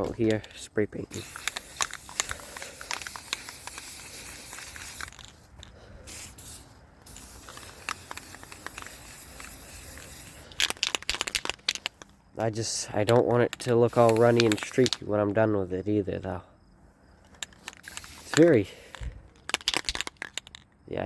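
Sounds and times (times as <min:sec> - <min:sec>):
spray paint can hissing: 0:01.1 - 0:12.1, 0:13.5 - 0:15.0, 0:17.4 - 0:20.6.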